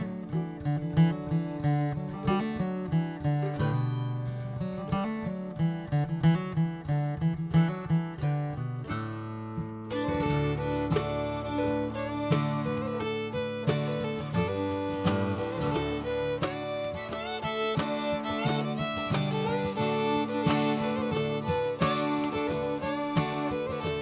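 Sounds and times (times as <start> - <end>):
strummed acoustic guitar: 0.0 - 24.0
fiddle: 8.9 - 24.0.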